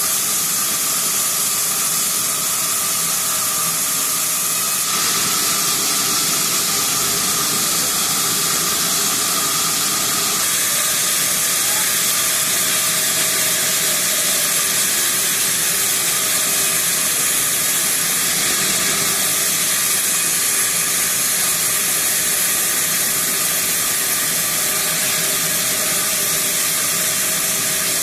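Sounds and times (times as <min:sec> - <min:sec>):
saw blade cutting wood: 0:00.0 - 0:28.0
faint machine hum: 0:04.7 - 0:14.4.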